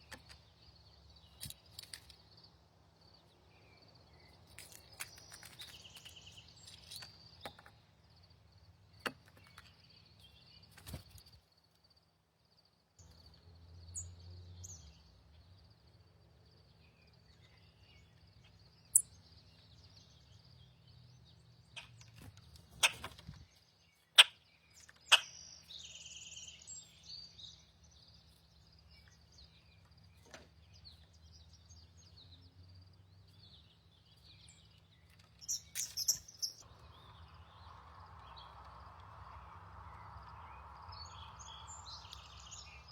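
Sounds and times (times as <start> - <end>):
bird calls: 21.6 - 32.5, 33.2 - 42.9
insect-like drone: 36.7 - 42.9.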